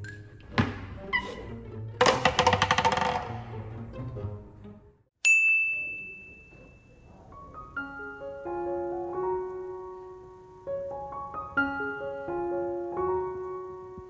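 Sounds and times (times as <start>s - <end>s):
slow piano melody: 6.5s - 14.0s.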